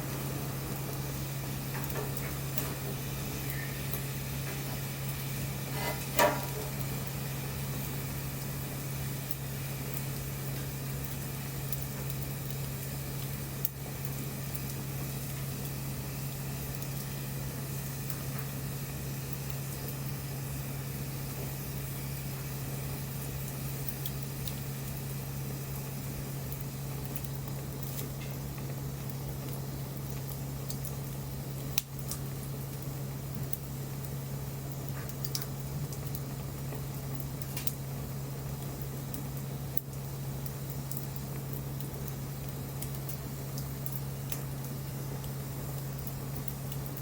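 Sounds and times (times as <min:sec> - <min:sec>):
bonfire crackling and hissing: 0:00.0 - 0:47.0
steady low hum: 0:00.0 - 0:47.0
sharp pop from fire: 0:05.7 - 0:06.9.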